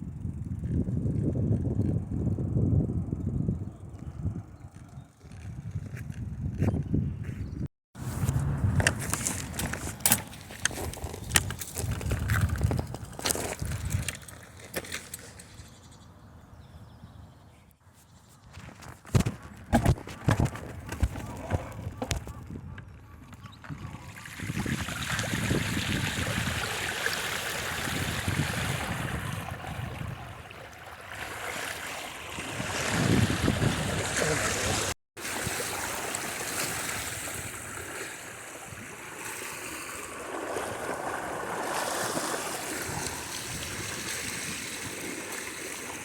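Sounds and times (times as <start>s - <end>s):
bicycle wheels splashing through water: 24.0s - 46.0s.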